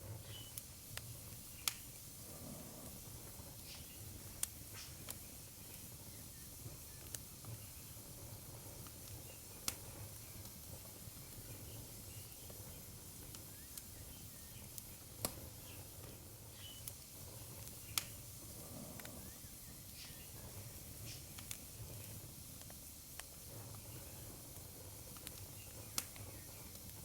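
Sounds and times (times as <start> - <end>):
fire pops and snaps: 0.0 - 27.0
wood fire crackling: 0.0 - 27.0.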